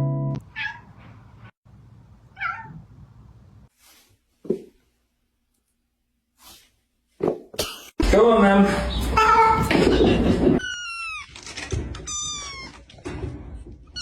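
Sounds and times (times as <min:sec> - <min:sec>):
cat meowing: 0:02.4 - 0:02.8, 0:12.0 - 0:12.9.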